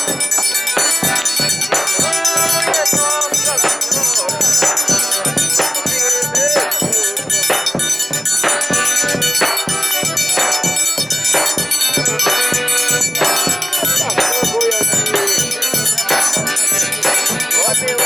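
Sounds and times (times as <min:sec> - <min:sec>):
live instrumental folk music: 0:00.0 - 0:18.0
steady high ringing: 0:00.0 - 0:18.0.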